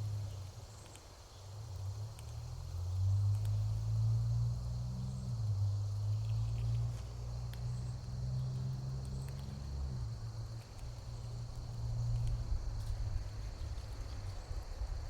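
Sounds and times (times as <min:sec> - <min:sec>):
faint ticks: 0:03.2 - 0:03.7
insects chirring: 0:03.7 - 0:15.0.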